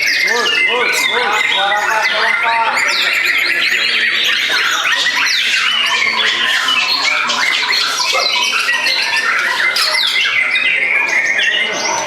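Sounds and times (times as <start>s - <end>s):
other songbirds singing: 0.0s - 12.0s.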